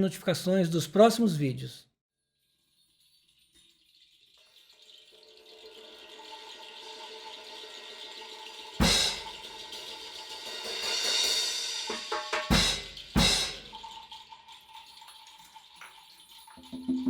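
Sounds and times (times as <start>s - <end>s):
quick drum strikes: 8.8s - 9.5s, 10.6s - 13.8s
cymbals ringing: 8.8s - 9.8s, 10.6s - 13.8s
crash cymbal and bass drum hits: 8.8s - 13.8s.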